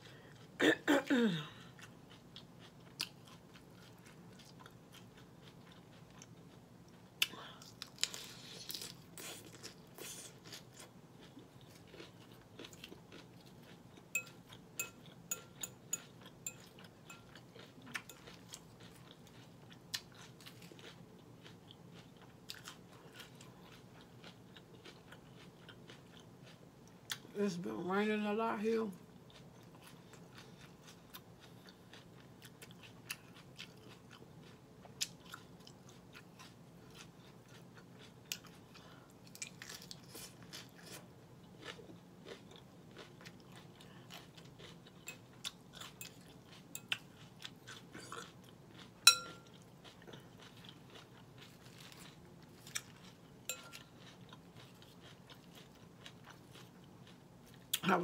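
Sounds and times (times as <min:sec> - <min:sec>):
crunchy chewing: 0:01.6 - 0:27.3, 0:29.2 - 0:57.9
fork clinking on glass bowl: 0:14.1 - 0:17.4, 0:49.1 - 0:49.5, 0:53.5 - 0:53.8.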